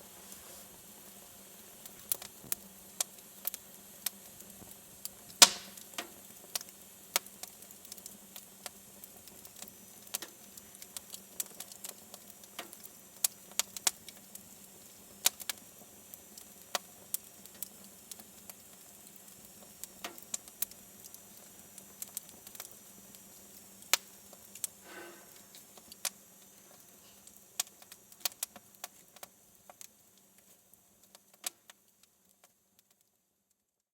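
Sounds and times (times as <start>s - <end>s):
fire hissing: 0.0s - 31.8s
wood fire crackling and popping: 0.2s - 33.1s.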